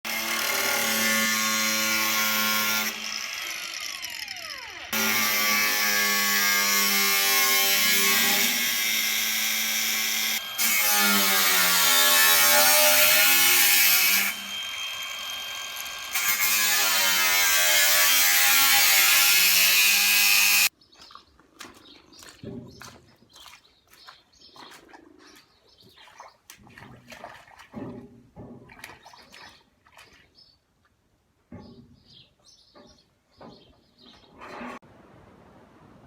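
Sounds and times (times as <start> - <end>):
electric power tool running: 2.8 - 5.4, 8.8 - 17.3
faint birdsong: 20.7 - 26.9, 28.9 - 34.5.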